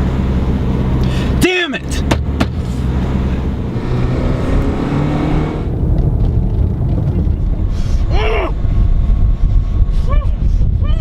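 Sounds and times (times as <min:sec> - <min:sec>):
truck engine and road noise: 0:00.0 - 0:10.8
rising and falling tone: 0:03.4 - 0:07.8.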